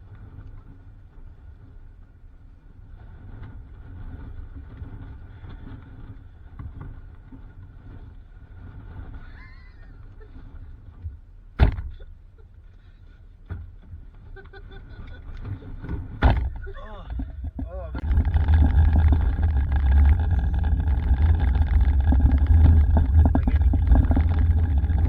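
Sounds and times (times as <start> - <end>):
car interior rumble: 15.0 - 25.0.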